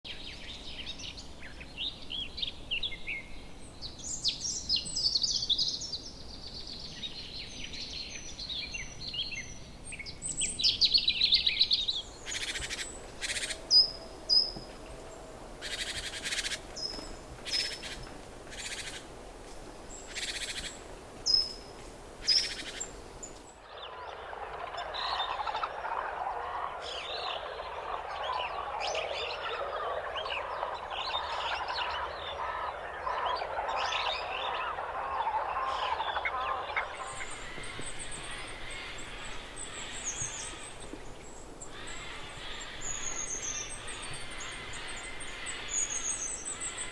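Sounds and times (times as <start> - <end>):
birds chirping and trilling: 7.6 - 19.1, 19.8 - 46.9
harsh rasping bird calls: 12.2 - 19.1, 22.2 - 46.9
birds chattering: 19.8 - 46.9.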